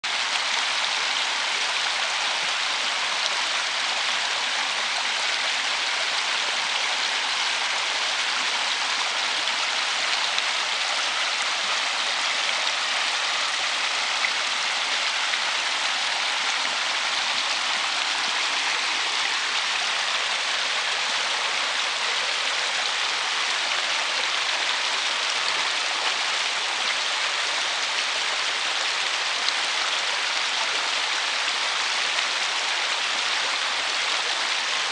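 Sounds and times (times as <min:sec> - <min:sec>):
river water rushing: 0:00.0 - 0:34.9.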